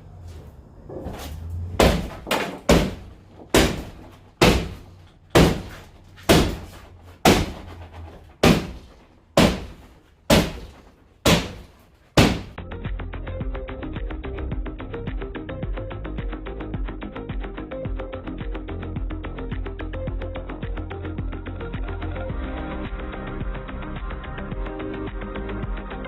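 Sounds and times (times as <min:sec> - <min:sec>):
hammer striking timber: 0:01.8 - 0:12.6
music: 0:12.6 - 0:26.0.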